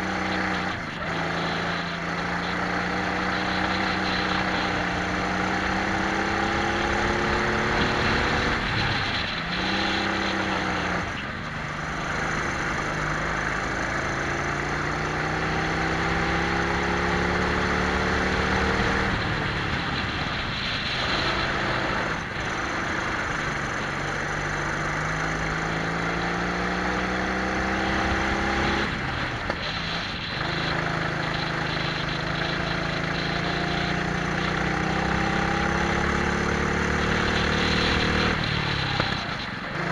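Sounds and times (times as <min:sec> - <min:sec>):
wind noise: 0:00.0 - 0:13.0, 0:17.2 - 0:24.4
kart engines revving: 0:00.0 - 0:39.9.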